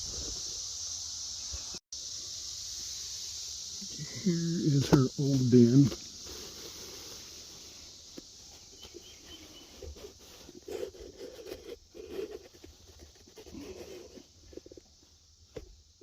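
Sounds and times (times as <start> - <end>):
phone scraping dirt walls: 4.6 - 14.9.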